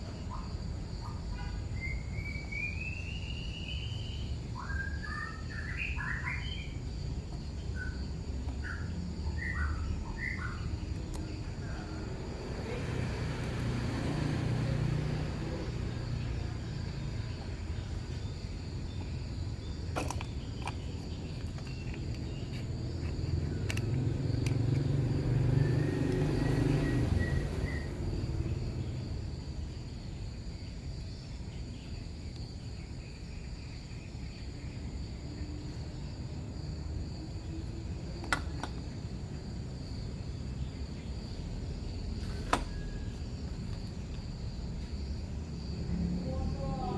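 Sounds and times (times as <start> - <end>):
insects chirring: 0.0 - 46.9
sharp clicks: 23.0 - 24.9.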